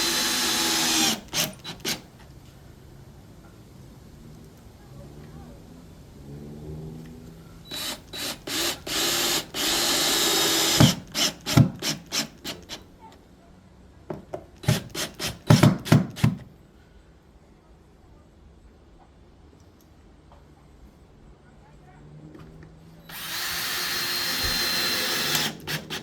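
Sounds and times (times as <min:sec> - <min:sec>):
cordless drill motor: 0:00.0 - 0:02.0, 0:07.7 - 0:12.8, 0:23.1 - 0:26.0
screws knocking into wood: 0:14.1 - 0:16.4.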